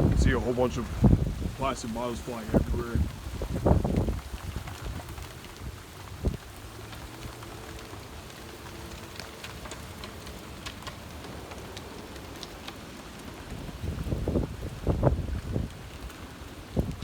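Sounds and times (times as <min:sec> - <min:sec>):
heavy rain hissing: 0:00.0 - 0:10.6
raindrops ticking on surfaces: 0:00.0 - 0:17.0.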